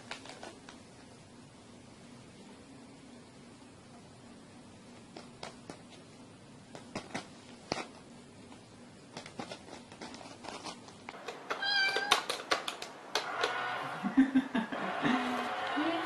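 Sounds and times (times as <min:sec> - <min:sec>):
cat meowing: 0:11.5 - 0:12.3.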